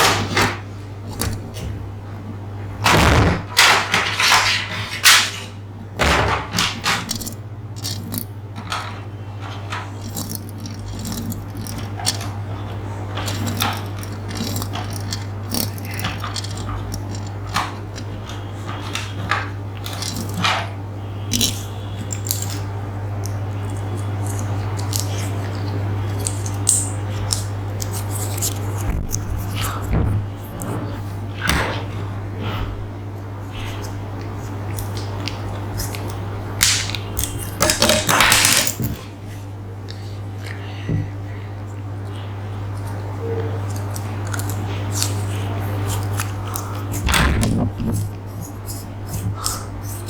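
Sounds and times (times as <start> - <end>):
small clicks taps and scratches: 0.0 - 2.4, 6.6 - 32.7, 33.5 - 39.1, 42.0 - 50.0
steady low hum: 0.0 - 50.0.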